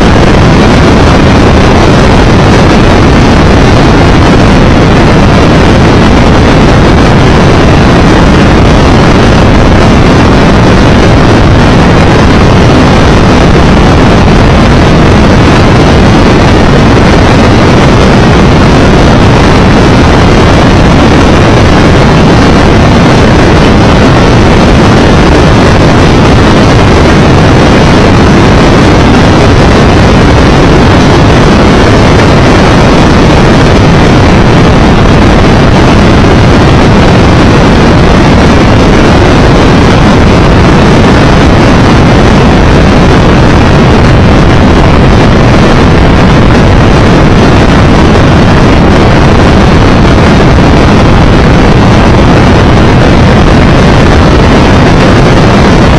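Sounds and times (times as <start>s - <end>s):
wind and road noise: 0.0s - 55.9s.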